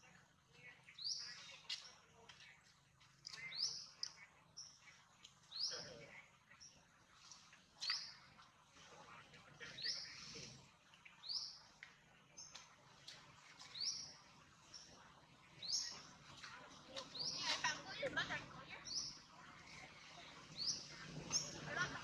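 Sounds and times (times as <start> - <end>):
bird chirping: 12.4 - 16.1.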